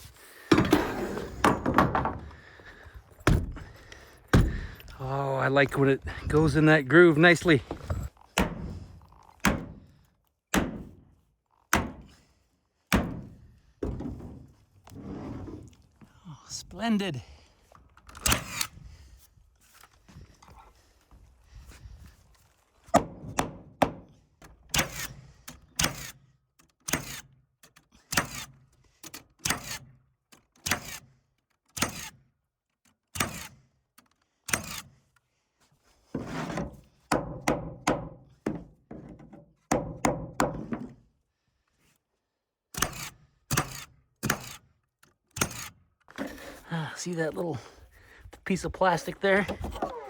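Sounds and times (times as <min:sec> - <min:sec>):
nail gun firing: 0:10.5 - 0:11.0.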